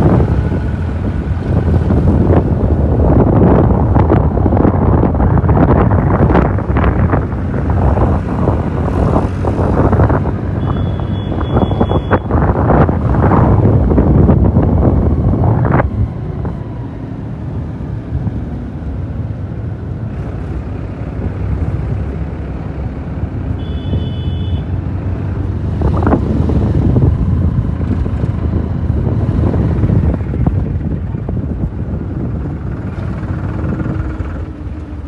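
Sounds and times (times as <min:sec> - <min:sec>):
wind buffeting microphone: 0:00.0 - 0:23.5, 0:24.7 - 0:35.0
tractor diesel engine running: 0:27.0 - 0:35.0.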